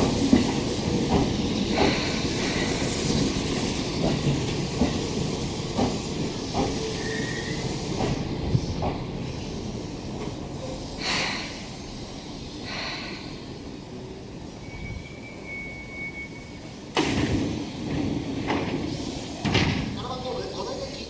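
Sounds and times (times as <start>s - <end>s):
train running noise: 0.0s - 21.0s
short air hisses: 11.0s - 11.8s
sliding doors thumping open: 16.9s - 20.0s.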